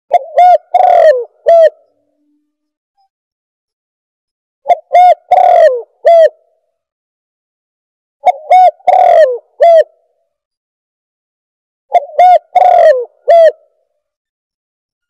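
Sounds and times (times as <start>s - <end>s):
dove cooing: 0.1s - 1.9s, 4.7s - 6.4s, 8.2s - 10.0s, 11.9s - 13.7s.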